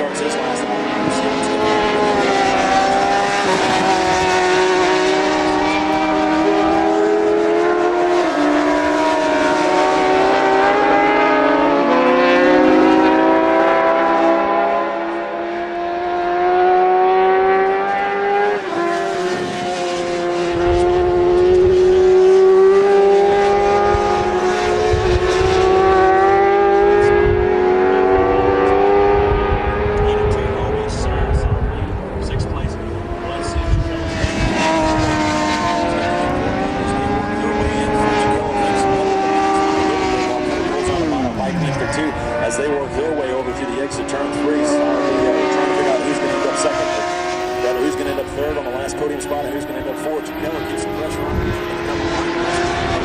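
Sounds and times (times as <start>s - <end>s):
racing motorcycle engines: 0.0s - 53.0s
heavy low rumble: 29.6s - 35.1s.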